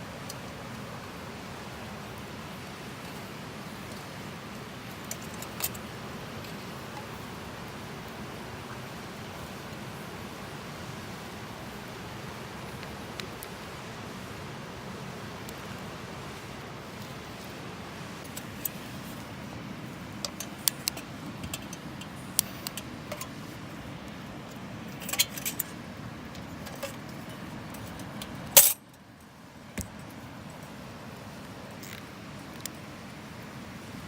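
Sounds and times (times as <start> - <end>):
steady rushing noise: 0.0 - 34.0
light metallic clicks and clinks: 4.8 - 7.2, 18.2 - 19.2, 20.1 - 23.6, 24.5 - 29.0.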